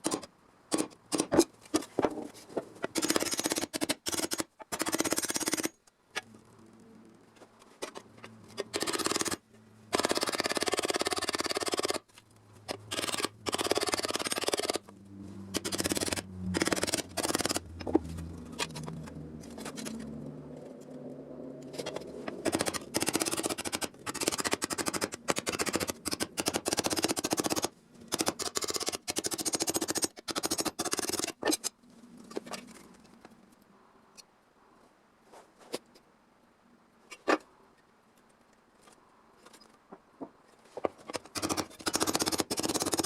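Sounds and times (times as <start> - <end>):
low steady hum: 14.8 - 22.9
sheet steel being cut clicking: 15.6 - 18.0.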